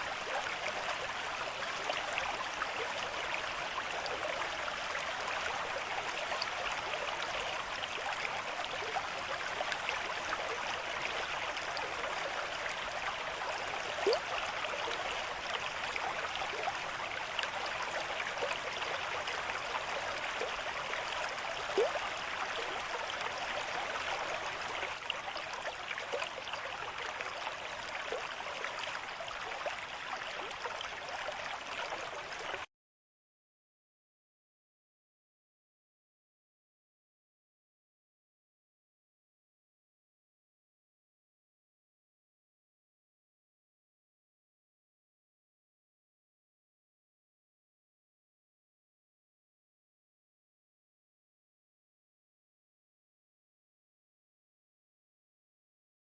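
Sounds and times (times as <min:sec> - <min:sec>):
water babbling: 0:00.0 - 0:32.7
water splashes: 0:13.0 - 0:32.7.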